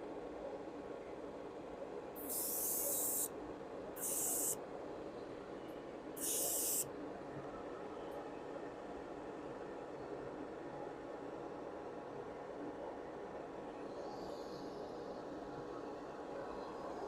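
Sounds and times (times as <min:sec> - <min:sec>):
low background noise: 0:00.0 - 0:17.0
airbrush spraying hiss: 0:02.2 - 0:03.3, 0:04.0 - 0:04.6, 0:06.2 - 0:06.8.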